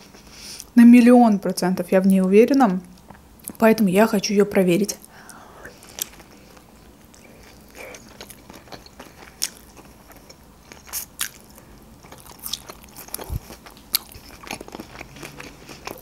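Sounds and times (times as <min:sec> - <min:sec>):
chewing spring roll: 0:05.8 - 0:16.0.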